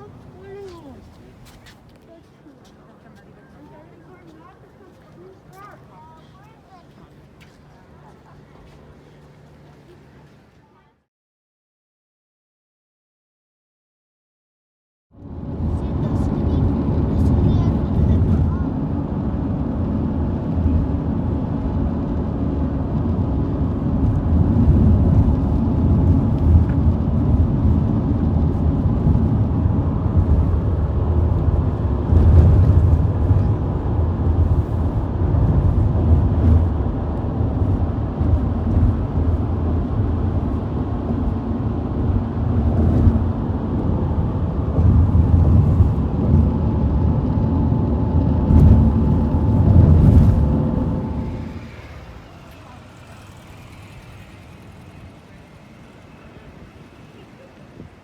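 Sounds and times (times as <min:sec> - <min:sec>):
car road and engine noise: 0:15.2 - 0:58.0.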